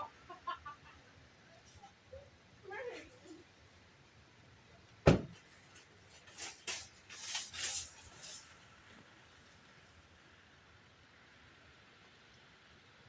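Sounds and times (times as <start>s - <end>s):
sharp knock: 5.1s - 5.4s
scraping and rustling: 5.2s - 9.6s.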